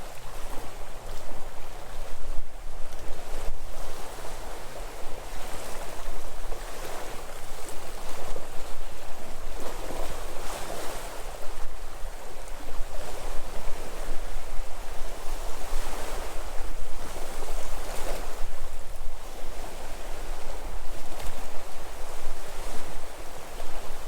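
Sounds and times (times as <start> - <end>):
sea waves breaking on shore: 0.0 - 24.0
wind rumble on microphone: 0.0 - 24.0.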